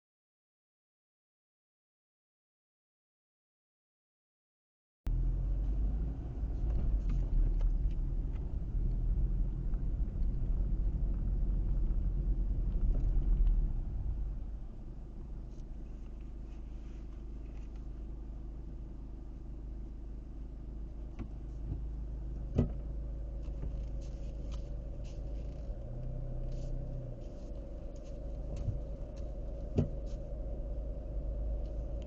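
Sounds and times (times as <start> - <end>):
road and engine rumble: 5.1 - 32.0
steady tone: 23.0 - 32.0.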